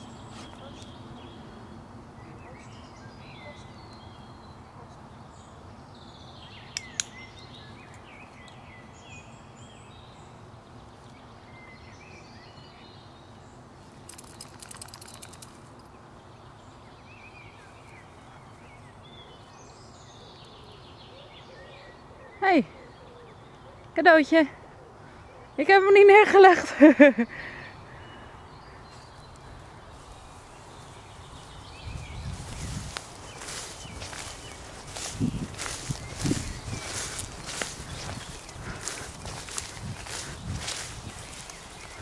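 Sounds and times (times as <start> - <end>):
songbirds chirping and singing: 0.0 - 42.0
crackling rustle: 28.9 - 42.0.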